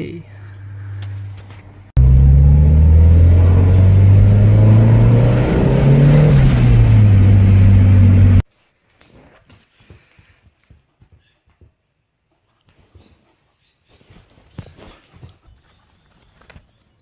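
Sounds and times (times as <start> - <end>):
turbocharged engine revving: 2.0 - 8.4.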